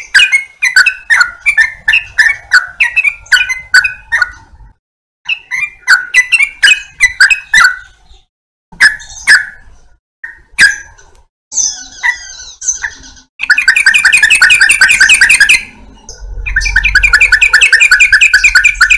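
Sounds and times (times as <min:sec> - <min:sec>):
bulbul singing: 0:00.0 - 0:04.6, 0:05.3 - 0:18.9.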